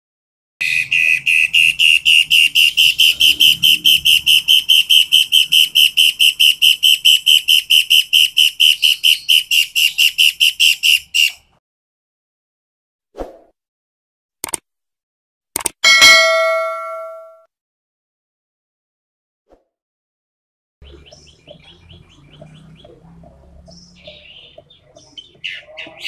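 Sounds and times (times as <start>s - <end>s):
songbird whistling sharp notes: 0.6s - 11.4s.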